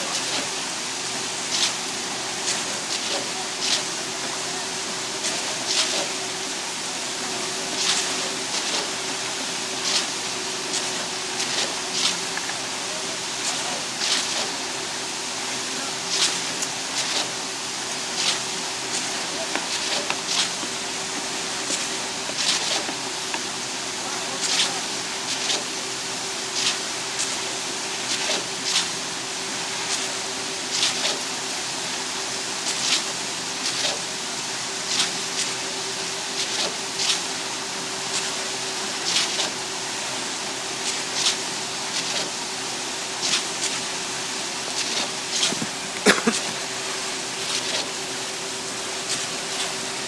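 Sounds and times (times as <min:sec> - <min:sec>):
concrete pump humming: 0:00.0 - 0:50.0
hissing knock of pump strokes: 0:01.4 - 0:04.4, 0:05.2 - 0:06.8, 0:07.7 - 0:12.8, 0:16.0 - 0:25.8, 0:32.7 - 0:34.1, 0:36.3 - 0:37.3, 0:40.8 - 0:42.4, 0:43.0 - 0:50.0.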